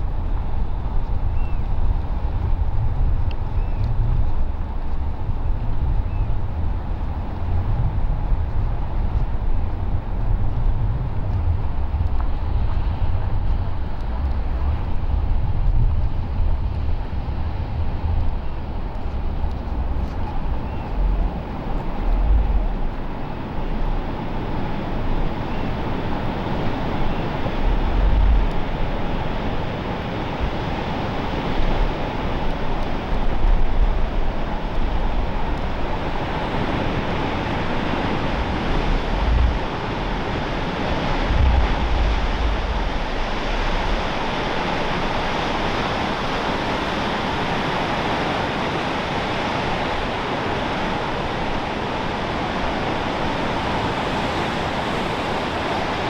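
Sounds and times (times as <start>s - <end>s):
ocean surf: 0.0s - 56.0s
wind gusting against microphone: 0.0s - 56.0s.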